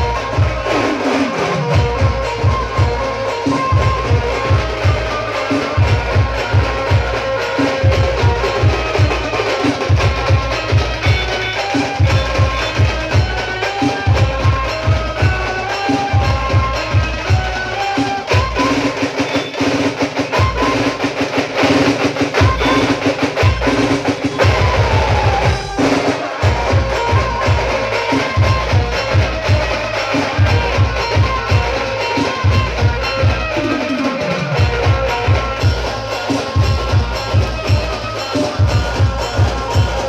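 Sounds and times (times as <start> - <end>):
loud music with heavy bass drum: 0.0 - 40.0.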